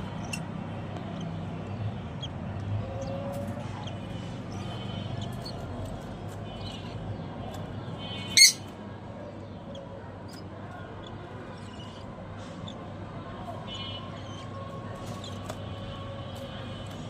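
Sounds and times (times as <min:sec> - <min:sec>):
small parrots chirping: 0:00.0 - 0:08.7, 0:09.7 - 0:12.8
parrot squawk: 0:08.3 - 0:08.6.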